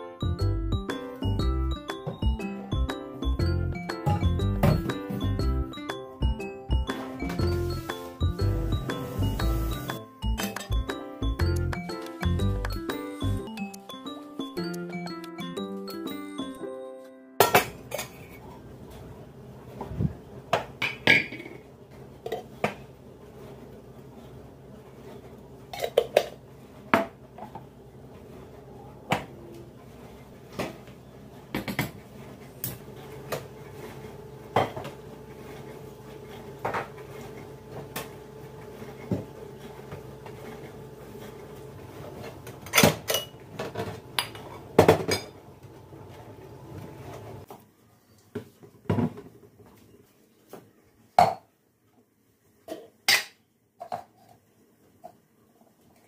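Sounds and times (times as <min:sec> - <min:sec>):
dishes and cutlery clinking: 0:42.7 - 0:45.4.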